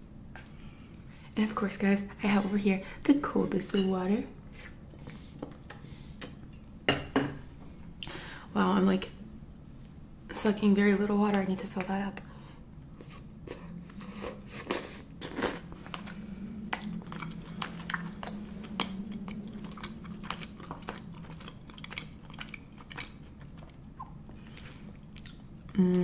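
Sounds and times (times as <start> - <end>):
faint low hum: 0.0 - 26.0
person chewing: 12.8 - 25.8.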